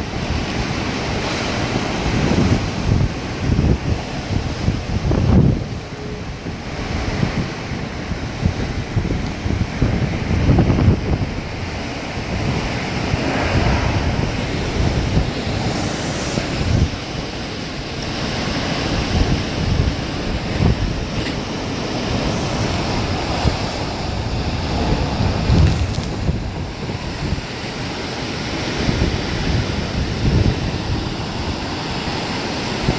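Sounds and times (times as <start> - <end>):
hurricane wind rushing: 0.0 - 32.9
wind gusts buffeting microphone: 0.0 - 32.9.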